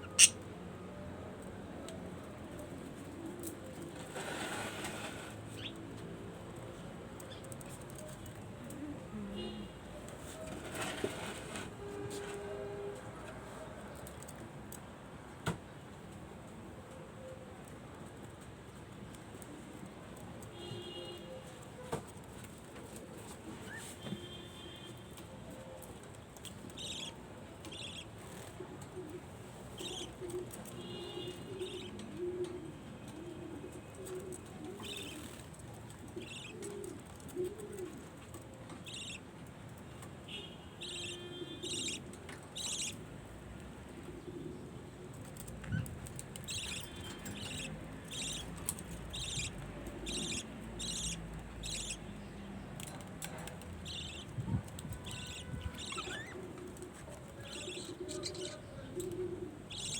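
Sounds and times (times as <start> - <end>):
budgerigars chirping: 0.0 - 0.4, 38.9 - 39.2, 41.0 - 42.0, 42.6 - 43.0, 46.5 - 48.5, 49.1 - 52.0, 53.8 - 54.3, 55.1 - 56.4, 57.4 - 58.6
pigeons cooing: 31.5 - 35.4, 36.0 - 38.1, 45.5 - 52.0, 53.8 - 59.9.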